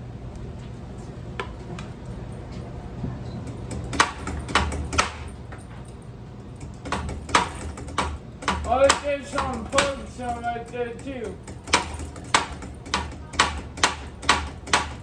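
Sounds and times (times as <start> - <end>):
steady low hum: 0.0 - 15.0
metal parts clinking and knocking: 6.6 - 13.2.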